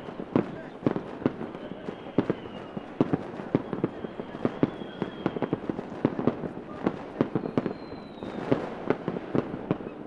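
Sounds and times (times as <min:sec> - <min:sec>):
fireworks bangs and pops: 0:00.0 - 0:10.0
faint high falling whistle: 0:03.6 - 0:05.6, 0:07.4 - 0:08.4.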